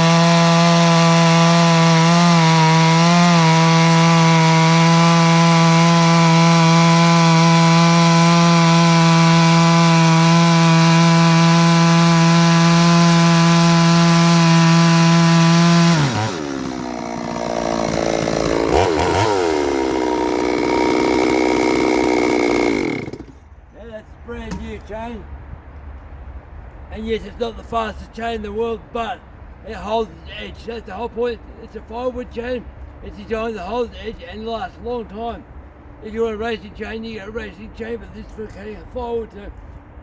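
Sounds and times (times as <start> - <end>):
chainsaw cutting log: 0.0 - 23.4.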